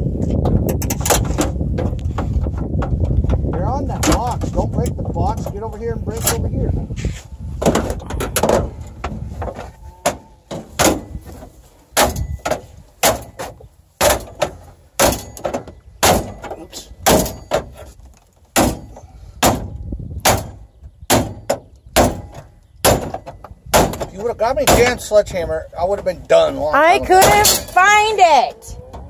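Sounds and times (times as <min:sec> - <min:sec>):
hand tool smashing dashboard: 0:07.6 - 0:17.9, 0:18.5 - 0:25.1.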